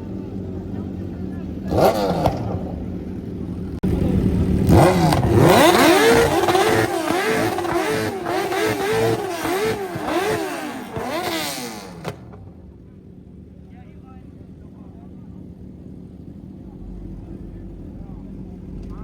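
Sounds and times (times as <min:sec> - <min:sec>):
car engine revving: 0:00.1 - 0:12.6.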